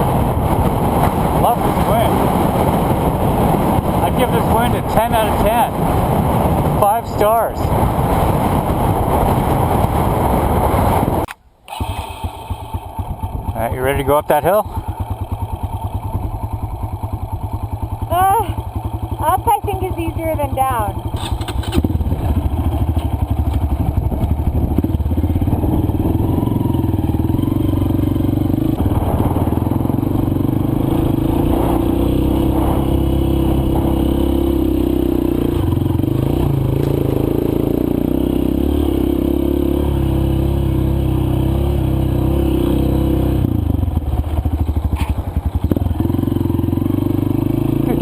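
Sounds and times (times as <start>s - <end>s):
dirt bike engine under load: 21.0s - 30.2s.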